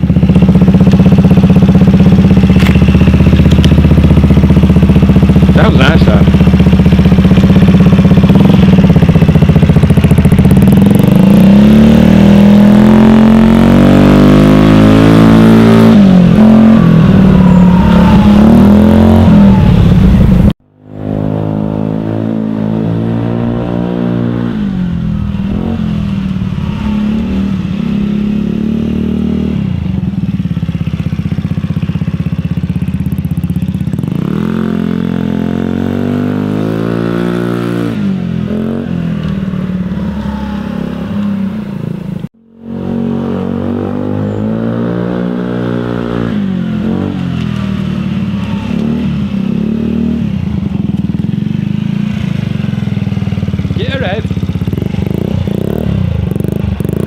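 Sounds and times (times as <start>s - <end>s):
scooter engine revving: 0.0s - 57.0s.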